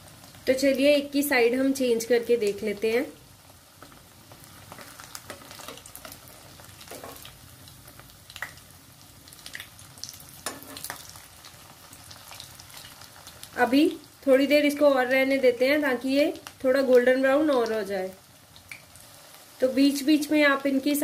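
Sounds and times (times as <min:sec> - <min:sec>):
patties sizzling in oil: 0:00.0 - 0:21.0
metal spoon scraping pan: 0:10.4 - 0:11.0.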